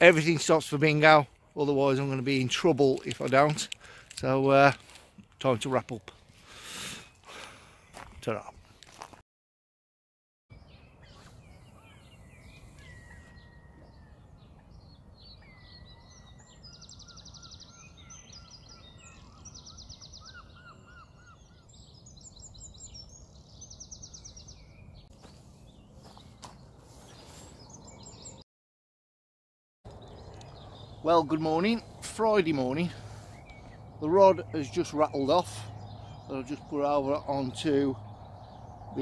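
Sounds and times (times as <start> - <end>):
songbirds singing: 0.0 - 8.8, 10.5 - 28.4, 29.9 - 39.0
fast high bird trills: 11.0 - 14.6.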